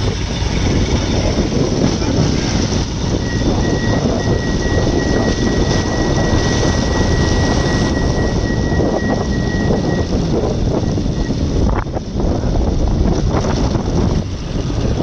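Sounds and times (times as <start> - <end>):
moving vehicle rumble: 0.0 - 15.0
wind: 0.0 - 15.0
thin high tone: 3.1 - 11.3.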